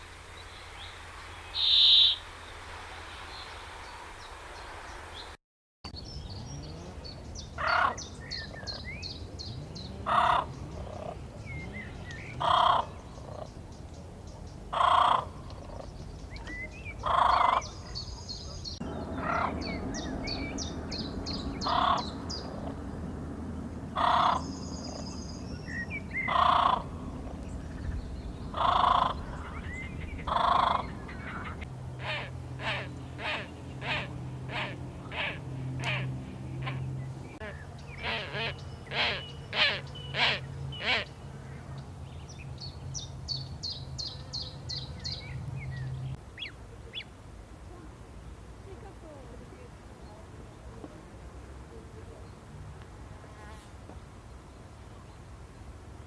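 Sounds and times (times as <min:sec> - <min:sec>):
high bird chirps: 0:00.4 - 0:02.5
loud bird call: 0:00.6 - 0:02.6, 0:16.6 - 0:22.7, 0:24.0 - 0:27.0, 0:27.7 - 0:41.2.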